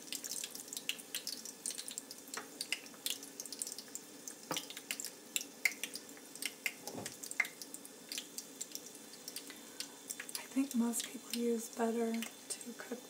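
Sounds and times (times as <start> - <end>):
oil sizzling and popping: 0.0 - 13.0.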